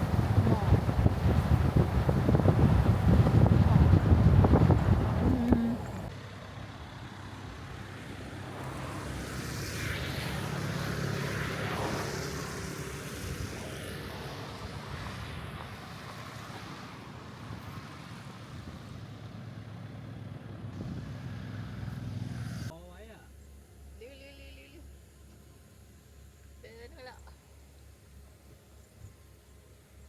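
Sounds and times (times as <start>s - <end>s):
car engine and road noise: 0.0s - 22.8s.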